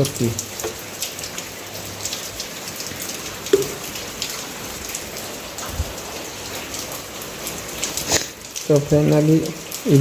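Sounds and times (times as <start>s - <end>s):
heavy rain falling: 0.0s - 10.0s
drops pattering close by: 2.0s - 5.0s.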